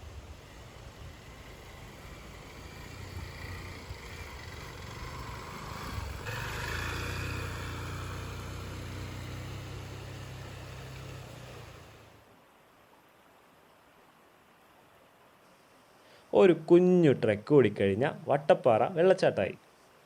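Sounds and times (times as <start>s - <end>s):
vehicle engine driving off-road: 0.0s - 12.2s.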